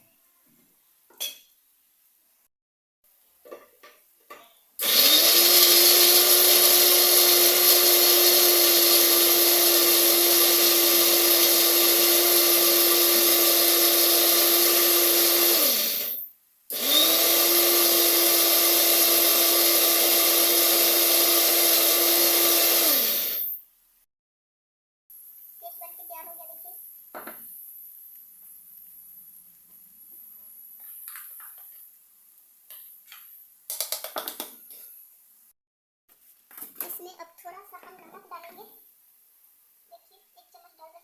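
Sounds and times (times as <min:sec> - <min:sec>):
mixer grinder motor running: 0:04.8 - 0:23.6.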